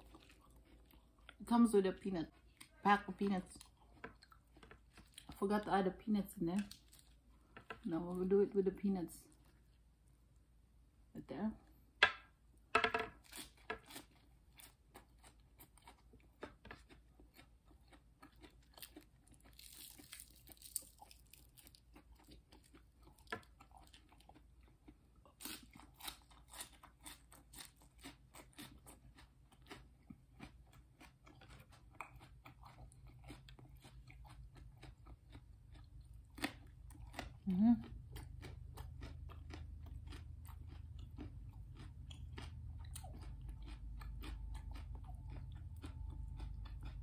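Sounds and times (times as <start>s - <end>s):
crunching raw vegetables: 13.1s - 47.0s.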